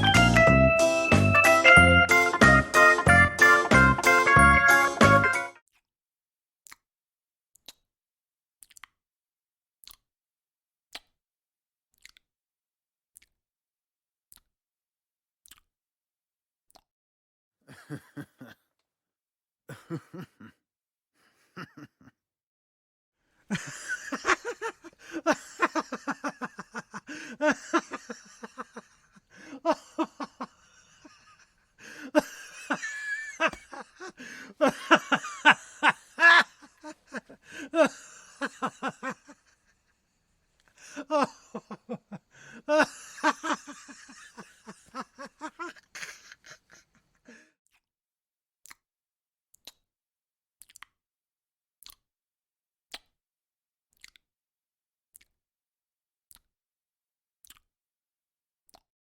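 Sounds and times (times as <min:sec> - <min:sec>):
person laughing: 0:17.7 - 0:18.7, 0:19.7 - 0:20.6, 0:21.3 - 0:22.2, 0:23.5 - 0:39.7, 0:40.8 - 0:47.5.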